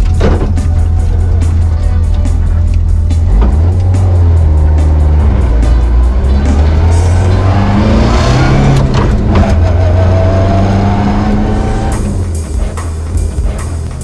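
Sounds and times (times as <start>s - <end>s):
music with drum beat: 0.0s - 8.0s, 11.6s - 14.0s
car engine running hard: 0.0s - 14.0s.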